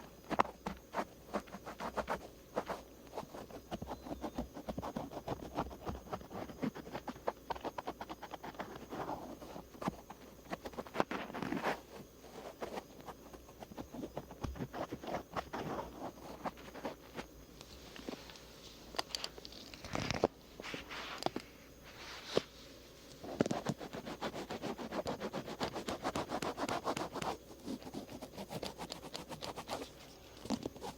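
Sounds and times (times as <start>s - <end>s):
cotton swab scratching ear: 23.3s - 29.9s.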